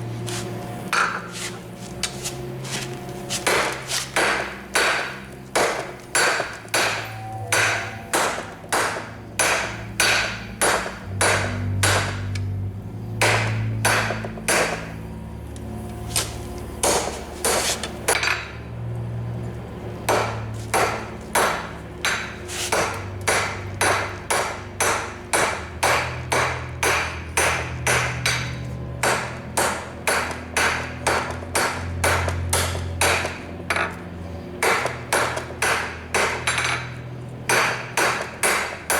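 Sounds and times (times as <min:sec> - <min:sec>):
hammer striking metal on anvil: 0:03.4 - 0:12.5, 0:13.2 - 0:14.9, 0:20.1 - 0:34.0, 0:34.6 - 0:38.9
low hum changing pitch: 0:04.4 - 0:35.1.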